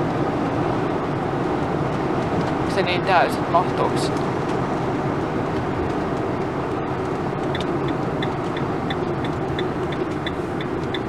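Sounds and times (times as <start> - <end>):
road and engine noise in cabin: 0.0 - 11.0
turn signal ticking: 4.0 - 11.0.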